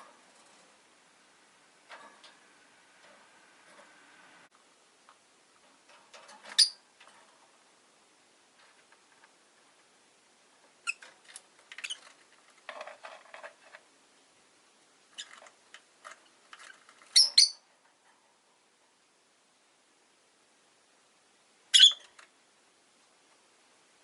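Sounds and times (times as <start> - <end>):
lovebirds chirping and chattering: 6.5 - 6.8, 16.6 - 17.6, 21.7 - 22.1
shrill bird calls: 21.8 - 22.1.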